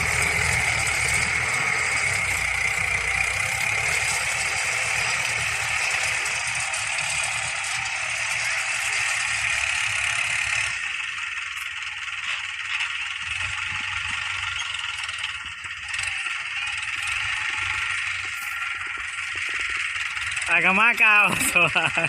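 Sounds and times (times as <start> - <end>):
tractor engine rumble: 0.0 - 22.0.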